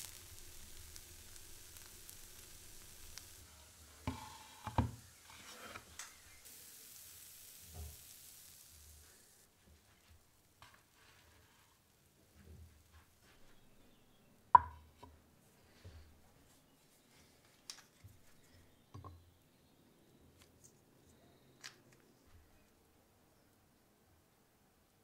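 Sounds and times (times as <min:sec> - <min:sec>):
bread sizzling in oil: 0:00.0 - 0:13.8
knocks and scrapes in pan: 0:04.1 - 0:06.0.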